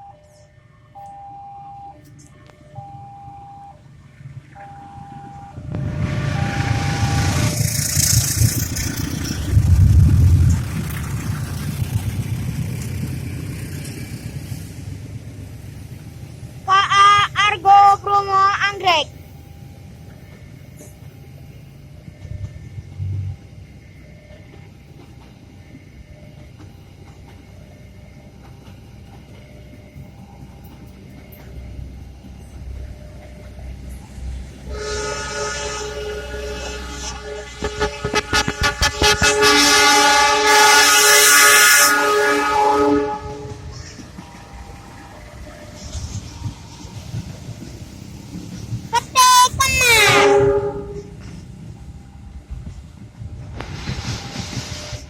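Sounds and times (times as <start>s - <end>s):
level crossing warning tone: 0.0s - 9.9s
train wheels rumbling on rails: 3.8s - 55.0s.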